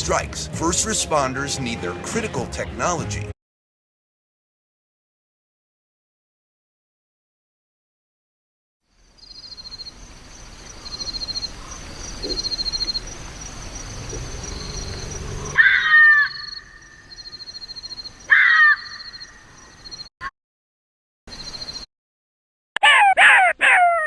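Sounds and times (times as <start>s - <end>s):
insects trilling: 8.9s - 20.1s, 21.3s - 21.9s
bird harsh calls: 9.2s - 20.1s.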